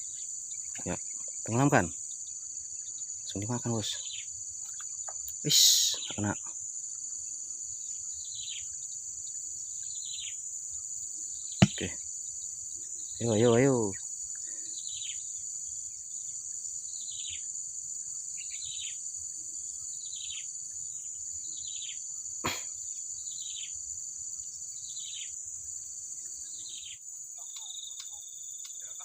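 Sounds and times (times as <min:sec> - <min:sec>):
high-pitched insect drone: 0:00.0 - 0:29.0.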